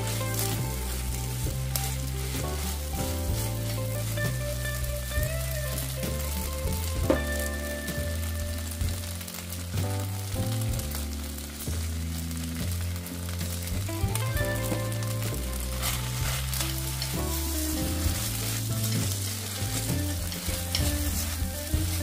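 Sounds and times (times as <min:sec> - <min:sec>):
background music with chords: 0:00.0 - 0:22.0
food sizzling in a pan: 0:00.0 - 0:22.0.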